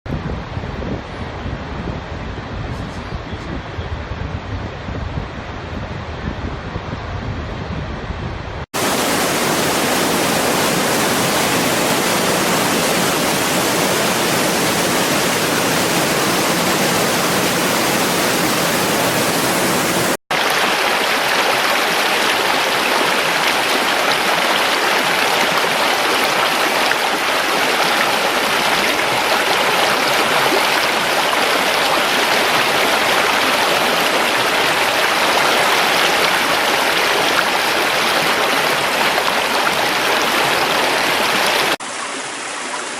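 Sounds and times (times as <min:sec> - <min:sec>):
rushing water: 0:08.7 - 0:42.9.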